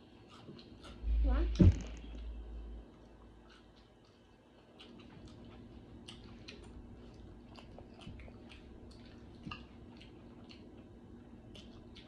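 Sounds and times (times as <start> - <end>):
chewing and mouth smacking: 0.2 - 1.0, 2.9 - 12.0.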